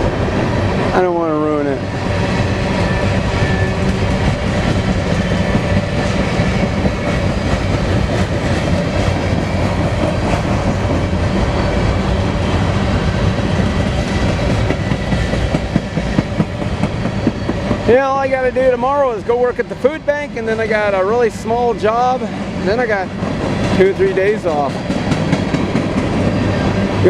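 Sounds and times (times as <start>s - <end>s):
train wheels rumbling on rails: 0.0s - 27.0s
clickety-clack over rail joints: 3.4s - 11.4s, 13.4s - 27.0s.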